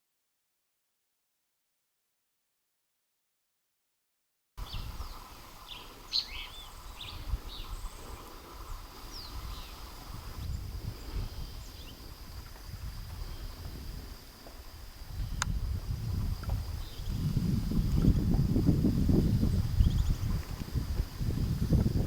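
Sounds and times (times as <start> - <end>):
birds chirping: 4.6 - 14.1, 15.1 - 18.2, 19.0 - 21.5
high insect drone: 4.6 - 22.0.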